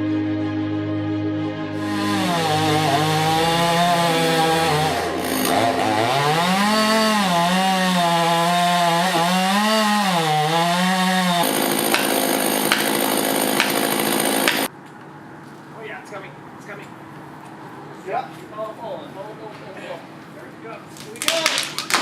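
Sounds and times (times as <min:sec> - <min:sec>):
chainsaw cutting wood: 0:01.8 - 0:14.7.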